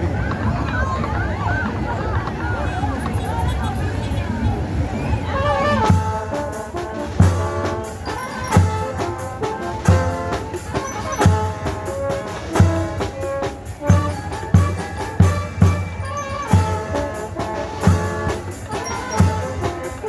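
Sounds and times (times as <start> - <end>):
brass band playing: 5.3 - 20.0
bass drum beat: 5.9 - 19.8.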